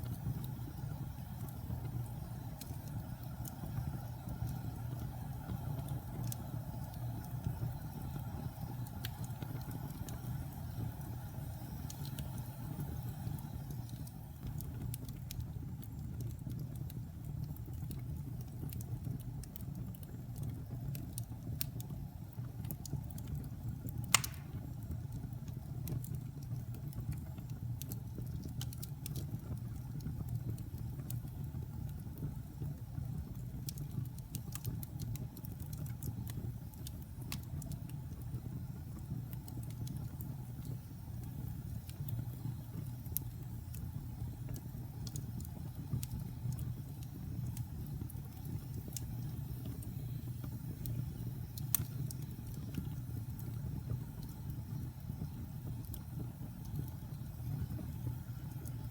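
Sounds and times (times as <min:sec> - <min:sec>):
wood fire crackling: 0:00.0 - 0:58.9
loud sharp pop of fire: 0:24.1 - 0:24.7.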